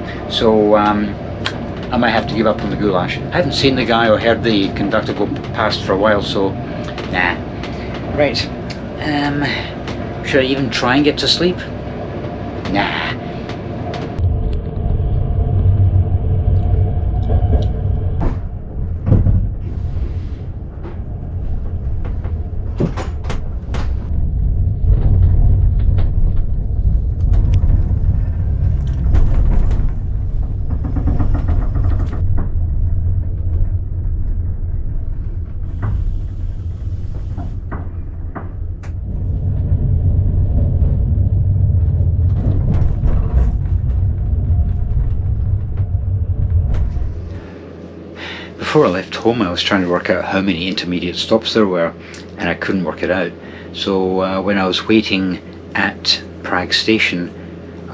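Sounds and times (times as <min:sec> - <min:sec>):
train rumbling on rails: 0:00.0 - 0:57.9
knocks and rattles: 0:17.1 - 0:47.5.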